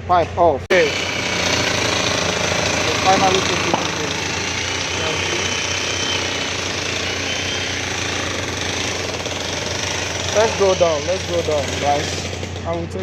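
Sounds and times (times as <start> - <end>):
jackhammer hammering: 0.7 - 13.0.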